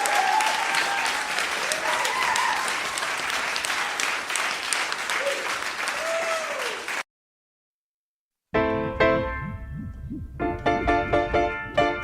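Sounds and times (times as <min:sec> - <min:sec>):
people cheering and whooping: 0:00.0 - 0:04.1, 0:05.1 - 0:06.9
audience clapping: 0:00.0 - 0:07.0.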